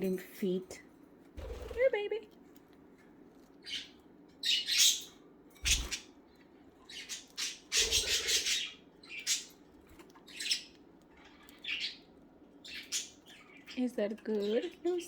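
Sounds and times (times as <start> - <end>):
budgerigars squawking and chirping: 3.6 - 6.2, 6.8 - 14.7.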